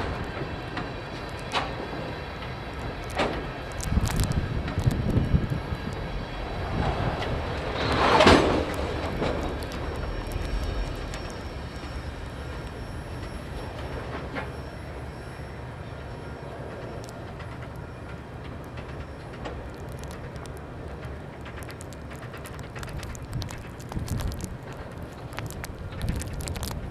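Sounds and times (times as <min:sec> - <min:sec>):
freight train cars rolling: 0:00.0 - 0:26.9.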